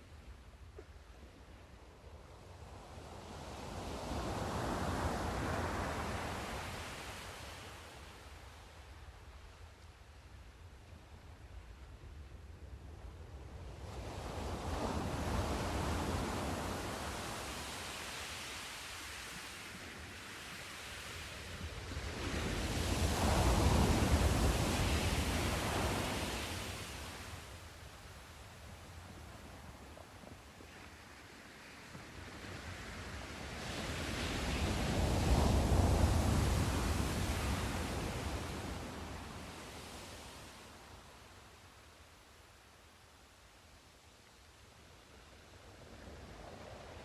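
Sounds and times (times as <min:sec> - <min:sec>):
wave washing in: 0:14.4 - 0:27.6, 0:32.6 - 0:41.0.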